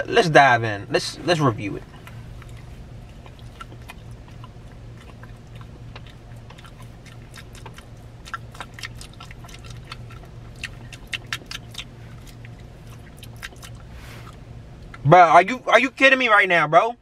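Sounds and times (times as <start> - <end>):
wet chewing mouth clicks: 2.0 - 15.0.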